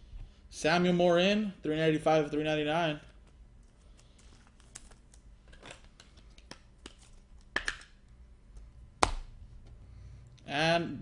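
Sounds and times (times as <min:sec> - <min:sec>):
cards clicking and rustling: 0:03.0 - 0:07.9.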